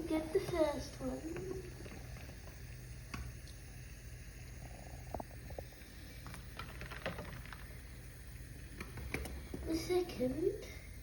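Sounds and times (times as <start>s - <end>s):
low steady hum: 0.0s - 11.0s
eggs clicking and knocking: 0.3s - 4.1s, 5.0s - 9.7s.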